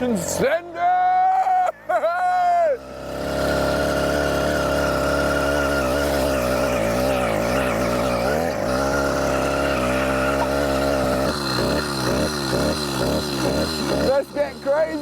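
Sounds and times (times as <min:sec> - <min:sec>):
two-stroke engine revving: 0:00.0 - 0:00.6, 0:02.2 - 0:15.0.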